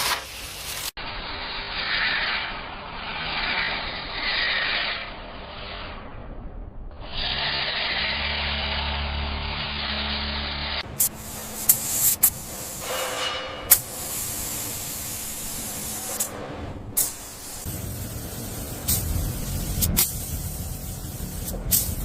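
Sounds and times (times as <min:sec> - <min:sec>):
spraying hiss: 0:10.8 - 0:16.4, 0:17.0 - 0:22.0.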